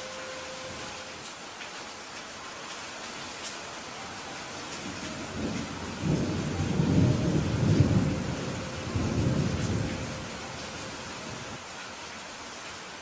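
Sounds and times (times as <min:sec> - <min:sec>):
steady rain falling: 0:00.0 - 0:13.0
rolling thunder rumble: 0:04.8 - 0:11.6.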